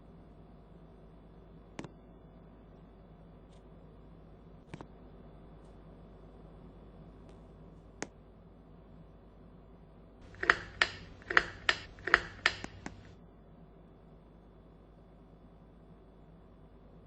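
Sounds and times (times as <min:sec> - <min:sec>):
faint steady hum: 0:00.0 - 0:17.0
sharp mechanical clicks: 0:10.2 - 0:13.1.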